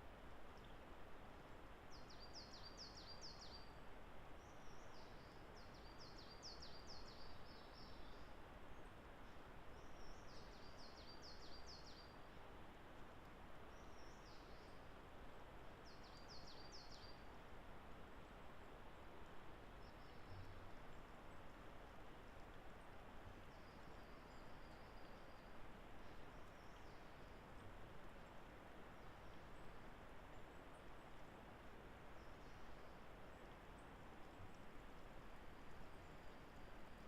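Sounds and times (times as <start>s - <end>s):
steady background hiss: 0.0s - 37.0s
songbird singing: 1.9s - 3.8s, 4.4s - 12.5s, 13.7s - 14.9s, 15.8s - 17.4s, 19.7s - 21.6s, 22.2s - 31.2s, 31.9s - 37.0s.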